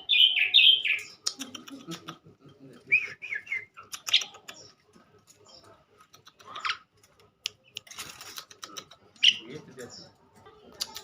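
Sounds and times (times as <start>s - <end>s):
bird clicks: 3.8s - 4.7s, 6.0s - 9.3s, 10.7s - 11.0s.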